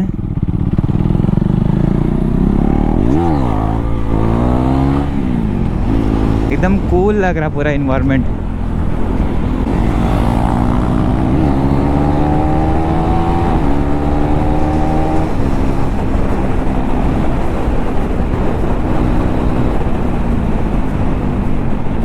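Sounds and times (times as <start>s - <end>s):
motorcycle engine accelerating: 0.0s - 22.0s
wind noise on microphone: 0.0s - 22.0s.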